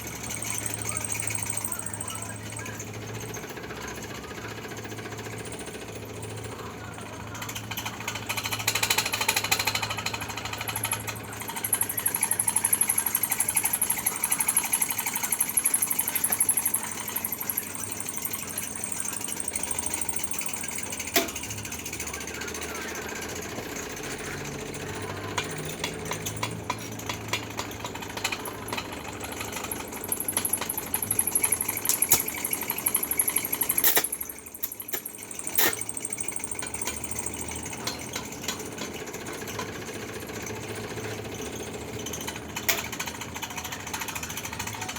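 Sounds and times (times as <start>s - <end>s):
steady low hum: 5.4s - 38.9s.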